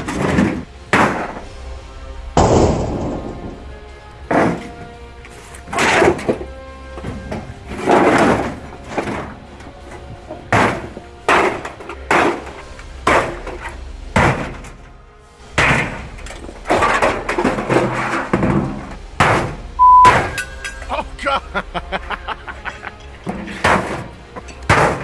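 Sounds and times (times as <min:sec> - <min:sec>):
background music: 0:00.0 - 0:25.0
heavy impacts on washing machine: 0:02.4 - 0:03.7, 0:10.4 - 0:14.8, 0:15.6 - 0:20.4, 0:23.2 - 0:25.0.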